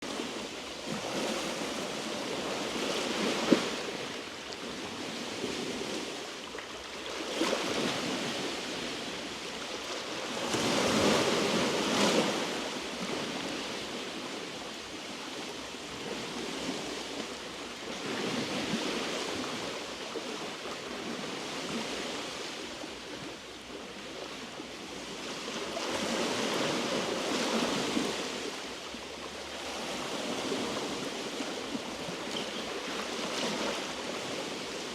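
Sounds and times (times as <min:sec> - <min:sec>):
waves washing over rocks: 0:00.1 - 0:14.6.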